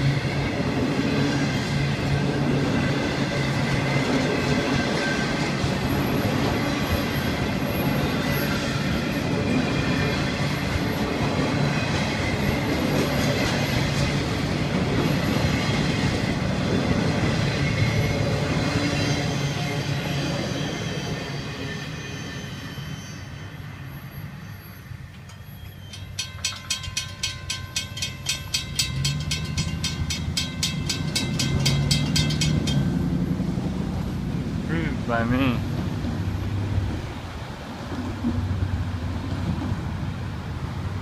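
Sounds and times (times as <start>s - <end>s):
freight train wheels rumbling on rail: 0.0s - 41.0s
fast even ringing: 25.3s - 33.2s.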